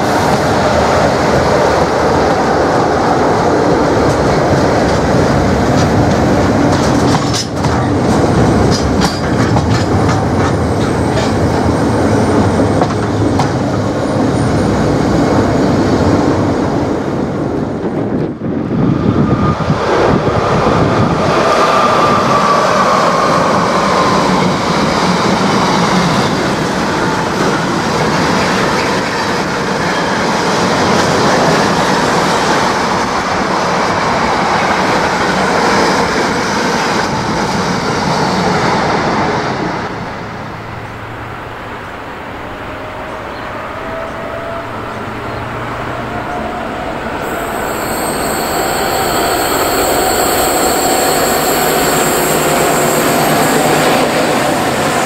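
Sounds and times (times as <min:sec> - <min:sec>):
wheels clacking over rail joints: 0:03.8 - 0:14.7
freight train wagons rolling: 0:03.8 - 0:15.2
steady high whine: 0:46.6 - 0:55.0.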